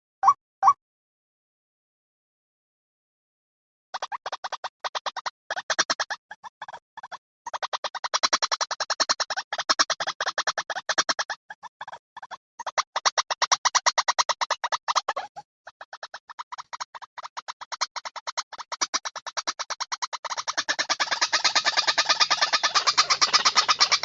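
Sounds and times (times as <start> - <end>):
recorded waterhen call: 4.0 - 24.0.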